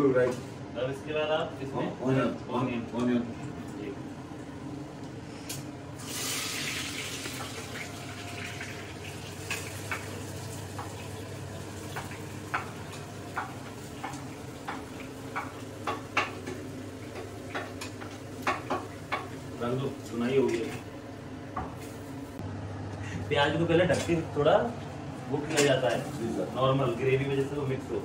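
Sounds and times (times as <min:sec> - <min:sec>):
onion sizzling in hot oil: 0:06.0 - 0:19.9.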